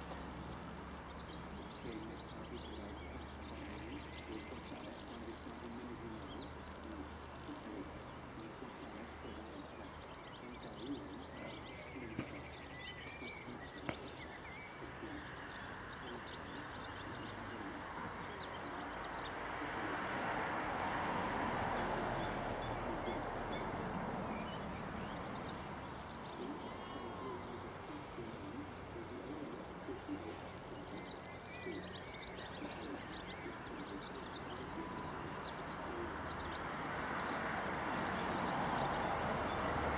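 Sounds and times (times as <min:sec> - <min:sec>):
outdoor ambience: 0:00.0 - 0:39.9
small birds chirping: 0:00.0 - 0:39.9.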